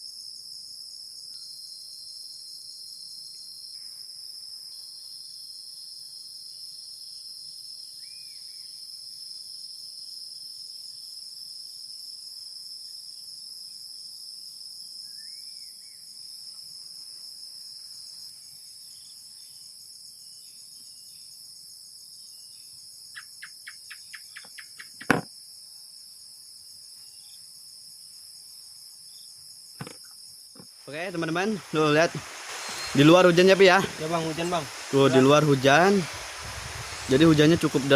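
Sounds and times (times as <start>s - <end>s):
insects chirring: 0.0s - 37.9s
faint bird chirps: 7.9s - 8.8s, 22.2s - 25.1s, 32.5s - 35.0s
sharp knock: 25.0s - 25.3s, 29.8s - 30.0s.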